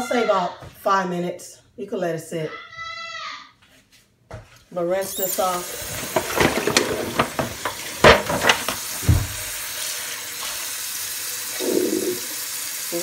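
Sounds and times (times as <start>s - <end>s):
tap water pouring into a pan: 5.0s - 13.0s.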